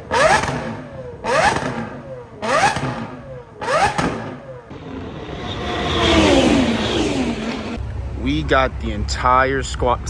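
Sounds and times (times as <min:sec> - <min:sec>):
performance engine revving: 0:00.0 - 0:07.8.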